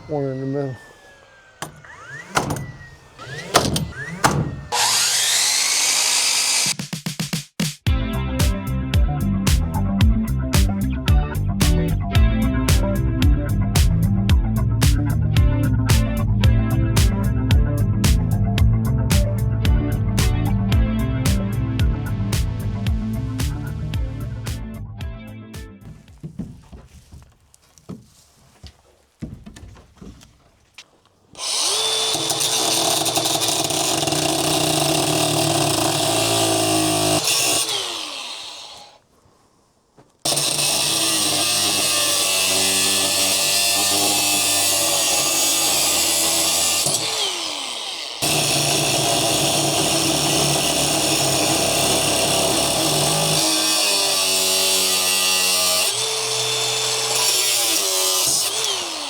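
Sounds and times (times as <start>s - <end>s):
power tool motor running: 0.0s - 6.8s, 31.3s - 39.0s, 40.3s - 59.0s
faint knocks: 25.8s - 31.1s.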